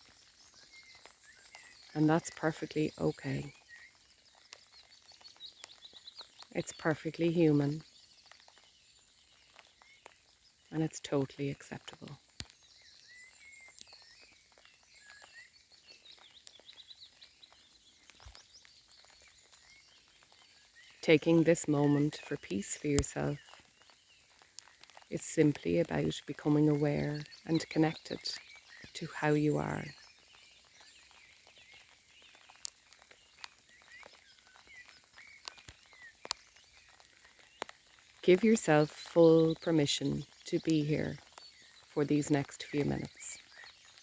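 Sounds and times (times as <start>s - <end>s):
faint bird chirps: 0.0s - 21.0s
raindrops pattering: 0.0s - 44.0s
small birds chirping: 0.0s - 44.0s.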